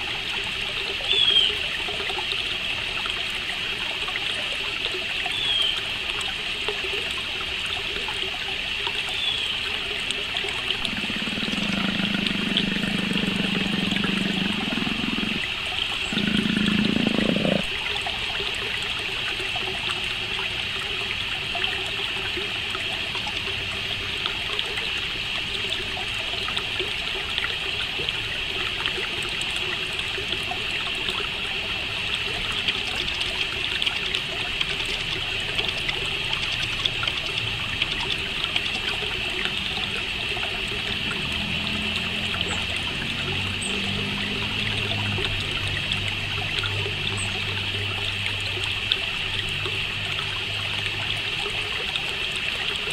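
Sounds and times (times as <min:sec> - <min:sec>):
faint bird chirps: 0:01.1 - 0:01.6, 0:05.3 - 0:05.8
crickets chirping: 0:10.8 - 0:17.6.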